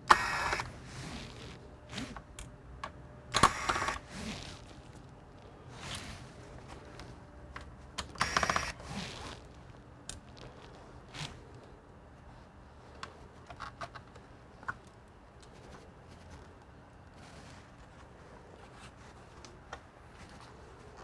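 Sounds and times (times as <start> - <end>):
computer parts being handled: 13.0 - 16.6.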